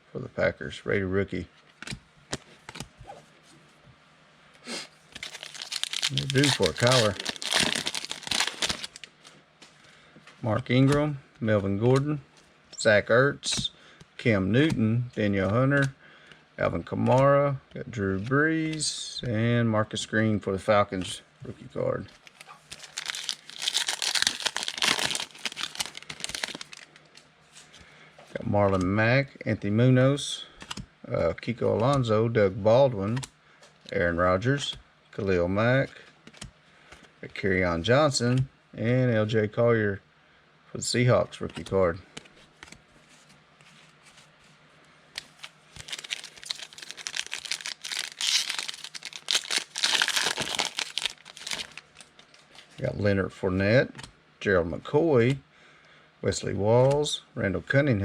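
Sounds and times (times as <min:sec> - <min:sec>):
foil wrapper tearing and crinkling: 0:05.2 - 0:09.1, 0:22.2 - 0:26.9, 0:45.2 - 0:52.3.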